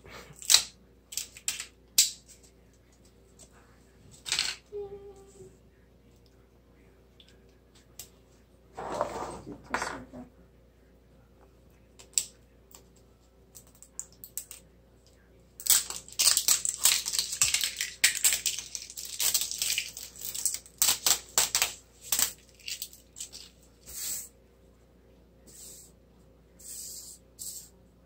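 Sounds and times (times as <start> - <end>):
plastic wrapping crinkling: 15.6 - 23.6.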